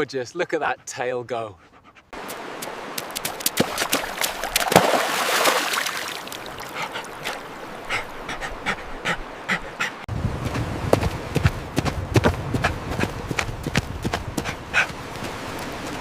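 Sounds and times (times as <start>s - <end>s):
paws tapping and splashing: 1.6s - 16.0s
dog splashing through water: 2.2s - 8.1s.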